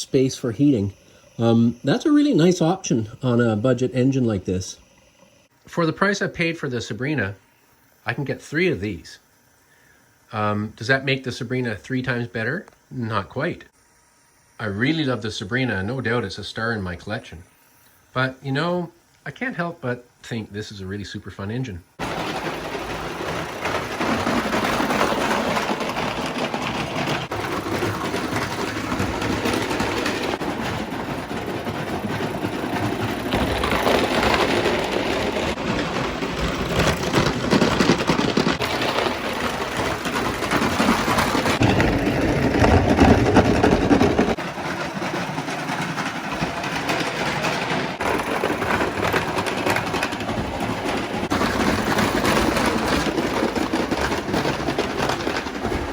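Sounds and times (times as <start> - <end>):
toy locomotive clatter: 0.0 - 4.8, 14.6 - 17.5, 18.2 - 55.9
steam hiss: 0.0 - 22.8.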